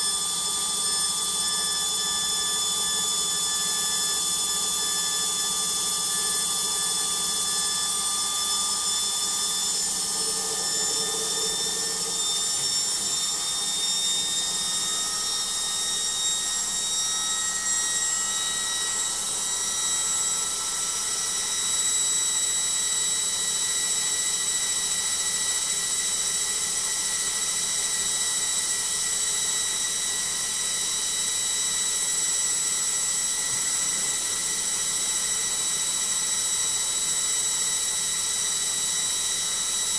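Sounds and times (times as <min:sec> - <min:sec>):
washing machine spinning: 0:00.3 - 0:20.5.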